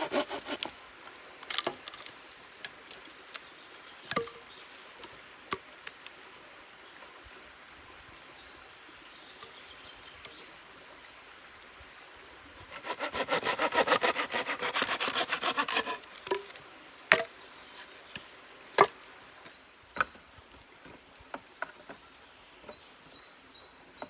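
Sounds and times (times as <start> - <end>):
hand saw cutting wood: 0.0 - 0.7, 12.7 - 17.2.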